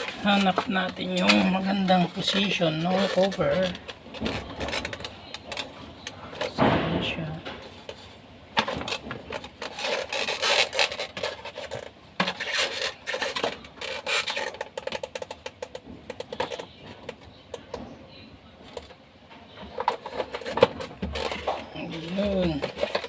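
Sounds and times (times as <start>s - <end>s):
panel scraping and rubbing: 0.0s - 15.0s.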